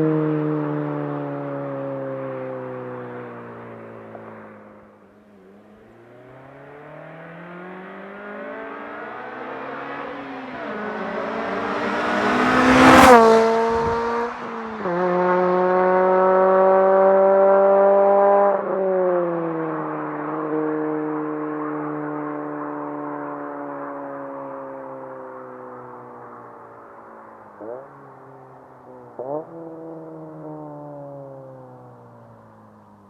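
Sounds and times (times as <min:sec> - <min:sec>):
car engine revving past: 0:05.9 - 0:25.0.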